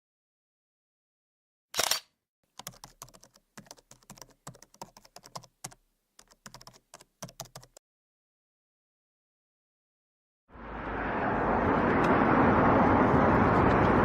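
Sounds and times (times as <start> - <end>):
rapid irregular clicking: 2.5 - 7.8.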